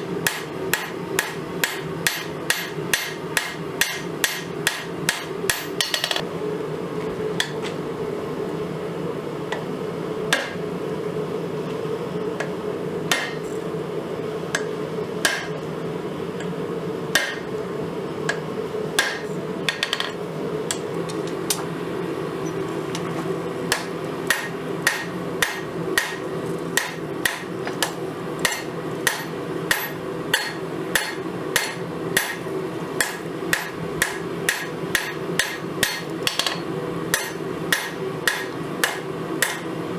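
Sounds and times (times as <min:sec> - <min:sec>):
hammer striking steel on anvil: 0:00.2 - 0:06.2, 0:10.4 - 0:10.6, 0:13.1 - 0:13.5, 0:14.6 - 0:15.5, 0:17.2 - 0:17.5, 0:19.0 - 0:20.8, 0:23.7 - 0:26.2, 0:26.8 - 0:39.7.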